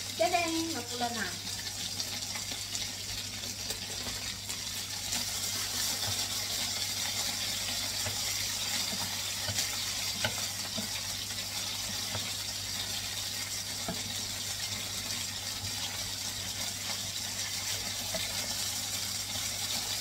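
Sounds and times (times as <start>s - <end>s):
chicken sizzling in oil: 0.0s - 20.0s
wooden spatula taps and scrapes: 5.1s - 6.4s, 7.1s - 12.4s, 13.8s - 14.2s.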